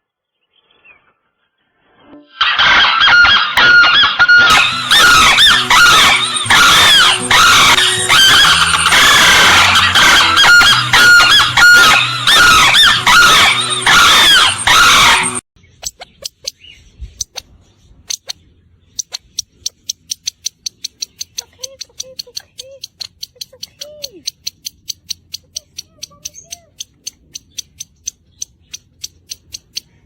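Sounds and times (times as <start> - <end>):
chorus of birds calling: 2.4 - 16.9
rapid regular ticking: 19.0 - 30.0.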